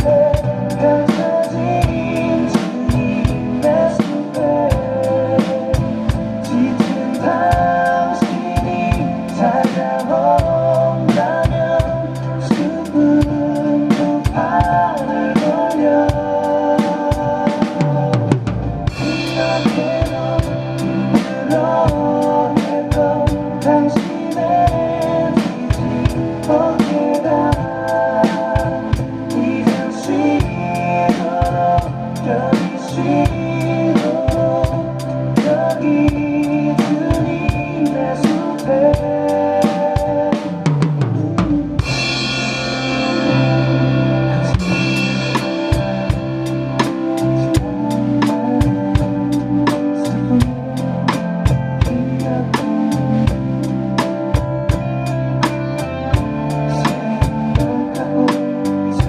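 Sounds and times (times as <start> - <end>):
drum kit beat: 0.0 - 59.0
worship song backing track: 0.0 - 59.0
cymbal crash: 41.8 - 44.0.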